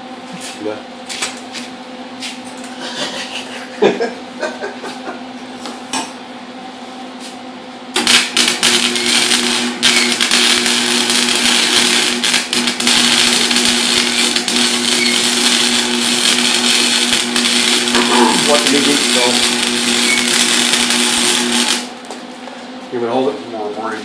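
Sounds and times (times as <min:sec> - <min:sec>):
steady low hum: 0:00.0 - 0:24.0
welding arc crackling: 0:07.9 - 0:22.1.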